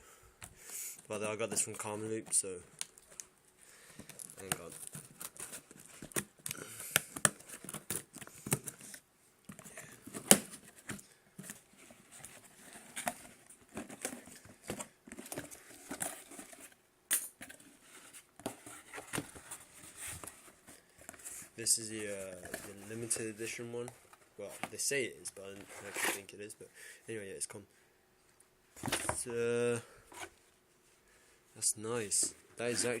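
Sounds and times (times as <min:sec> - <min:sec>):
packaging rustling and tearing: 0:04.0 - 0:09.0.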